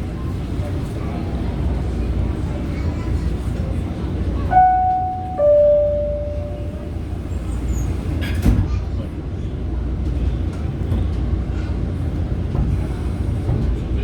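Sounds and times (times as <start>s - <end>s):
train car rumble: 0.0s - 14.0s
two-tone door chime: 4.5s - 7.0s.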